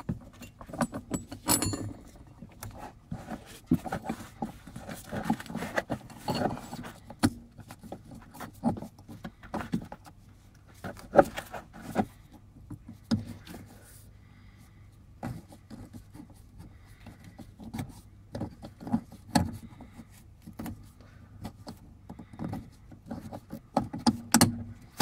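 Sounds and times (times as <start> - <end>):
metallic clinks of hand tools: 0.4 - 2.1.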